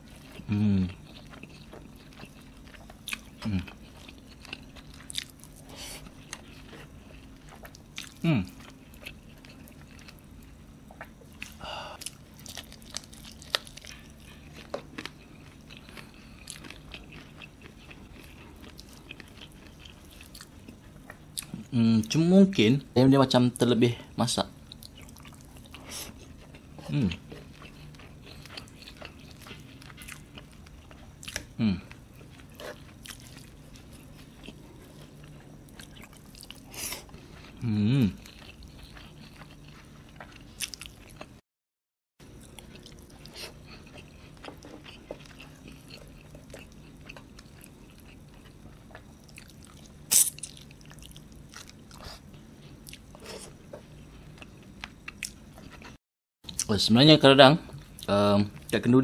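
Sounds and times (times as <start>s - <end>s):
close chewing with wet mouth noises: 0.0s - 22.6s, 24.6s - 41.4s, 42.2s - 56.8s.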